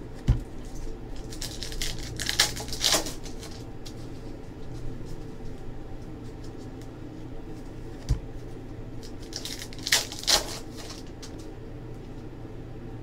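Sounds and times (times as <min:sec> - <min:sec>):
steady room hum: 0:00.0 - 0:13.0
cards clicking and rustling: 0:00.6 - 0:04.0.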